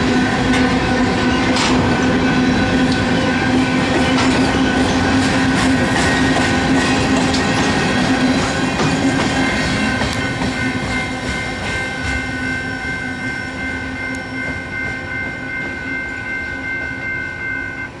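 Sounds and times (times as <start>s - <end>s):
freight train rolling past: 0.0s - 18.0s
steady high-pitched tone: 0.0s - 18.0s
wheels clicking over rail joints: 0.5s - 3.1s, 3.8s - 12.5s.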